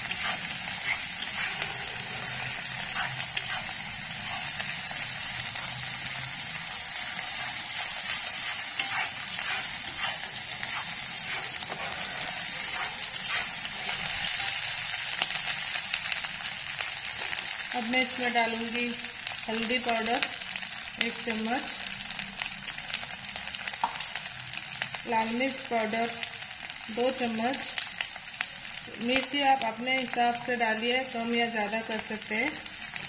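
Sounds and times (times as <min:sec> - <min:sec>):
onions sizzling in hot oil: 0:00.0 - 0:33.0
spatula scraping and clicking pan: 0:07.2 - 0:14.7.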